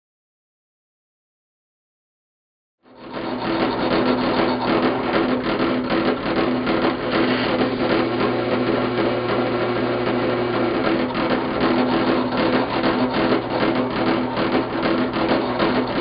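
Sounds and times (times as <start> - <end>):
power tool motor running: 3.0 - 16.0.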